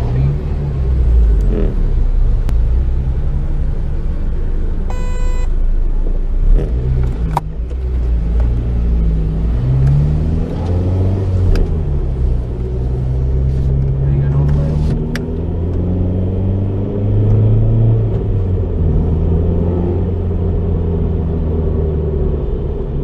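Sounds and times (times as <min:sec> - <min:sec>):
car engine pulling away: 0:00.0 - 0:23.0
short electronic beep: 0:04.9 - 0:05.5.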